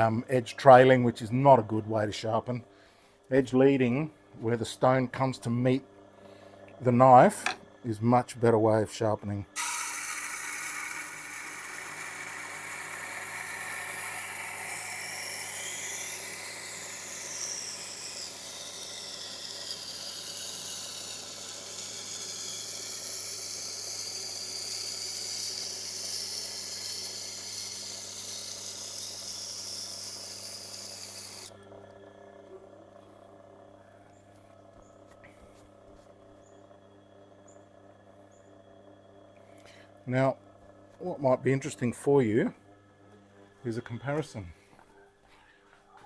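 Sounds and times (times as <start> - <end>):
grinder motor hum: 3.3 - 44.9.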